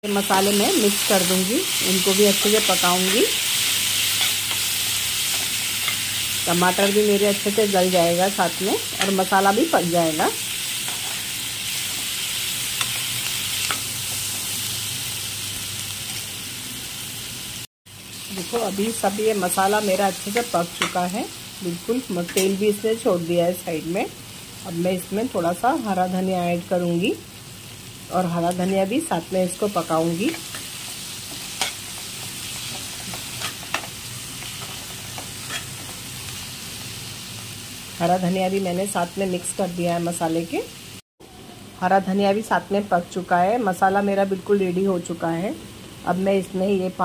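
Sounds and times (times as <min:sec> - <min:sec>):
masala sizzling in oil: 0:00.0 - 0:47.0
spoon scraping a pan: 0:10.9 - 0:12.0, 0:34.5 - 0:35.9.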